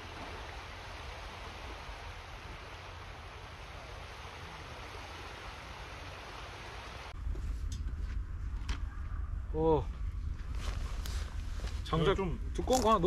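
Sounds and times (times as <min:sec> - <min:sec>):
low rumble: 0:07.1 - 0:13.0.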